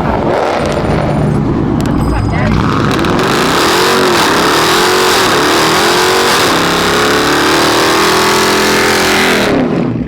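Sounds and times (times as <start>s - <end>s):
car engine at high revs: 0.0s - 10.0s.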